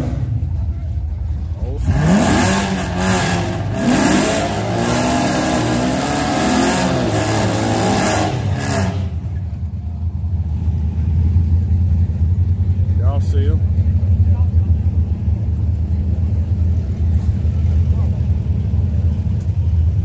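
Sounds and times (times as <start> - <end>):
car engine revving hard: 1.8 - 9.3.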